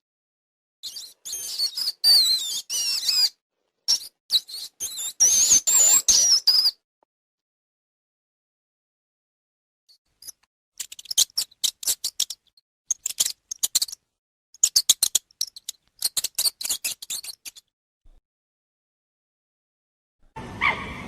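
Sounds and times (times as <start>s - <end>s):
animal clicking chirps: 10.2s - 14.0s, 14.6s - 17.7s.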